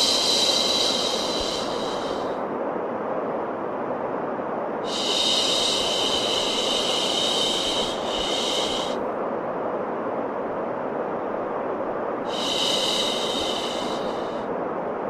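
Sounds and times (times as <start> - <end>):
high hissing layer: 0.0 - 2.5, 4.8 - 9.2, 12.2 - 14.5
steady white noise: 0.0 - 15.0.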